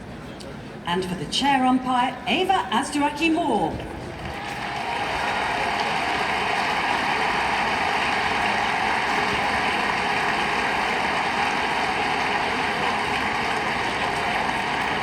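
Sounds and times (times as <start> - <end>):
crowd applauding: 4.1 - 15.0.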